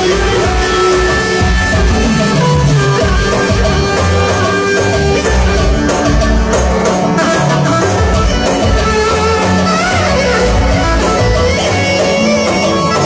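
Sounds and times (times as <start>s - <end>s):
bass line: 0.0s - 13.0s
plucked string lead: 0.0s - 13.0s.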